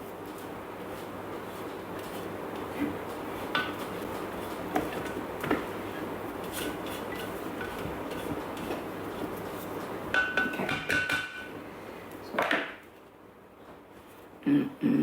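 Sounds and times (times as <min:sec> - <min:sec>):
dishes and utensils clinking: 0:03.5 - 0:03.9, 0:06.4 - 0:08.8, 0:10.1 - 0:11.5.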